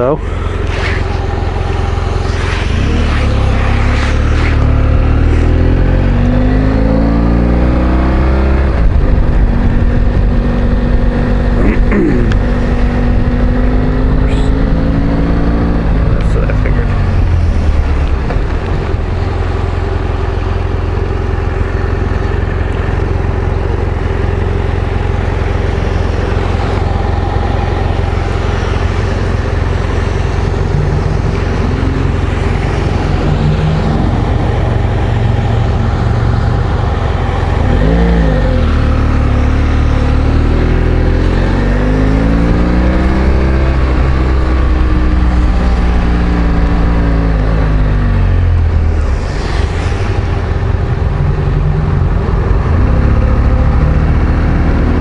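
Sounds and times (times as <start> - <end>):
wind and road noise: 0.0 - 55.0
motorcycle engine running: 18.1 - 52.7.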